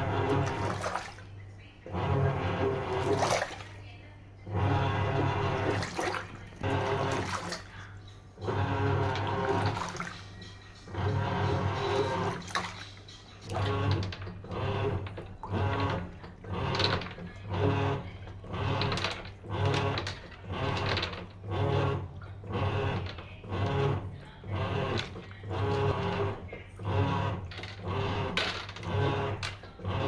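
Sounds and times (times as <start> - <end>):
washing machine motor surging: 0.0 - 30.0
water sloshing in tub: 0.0 - 30.0.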